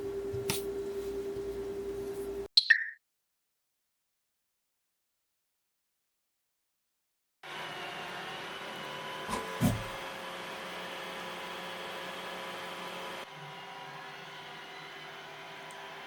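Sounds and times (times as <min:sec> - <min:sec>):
robot vacuum cleaner whirring: 0:07.5 - 0:16.0.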